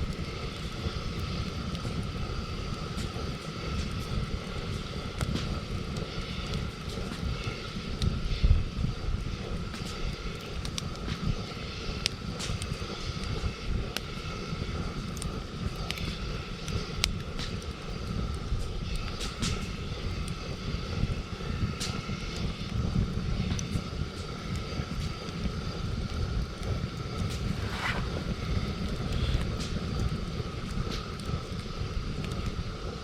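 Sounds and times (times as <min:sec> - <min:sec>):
campfire crackling and popping: 0:00.0 - 0:33.0
low rumble: 0:26.8 - 0:31.3.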